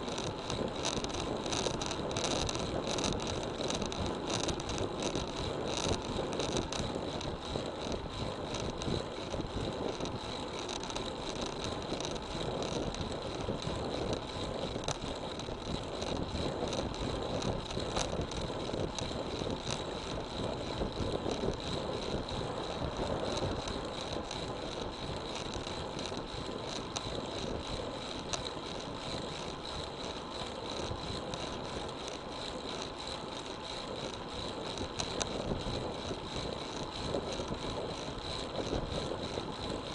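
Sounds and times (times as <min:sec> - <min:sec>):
bike tyre hum: 0:00.0 - 0:39.9.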